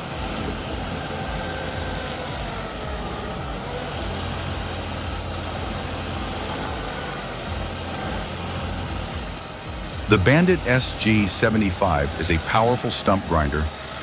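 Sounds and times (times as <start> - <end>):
heavy machine engine running: 0.0 - 14.0.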